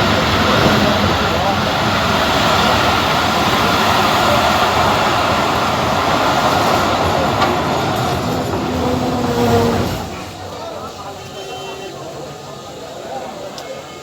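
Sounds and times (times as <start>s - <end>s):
train wheels rumbling and rattling: 0.0s - 13.7s.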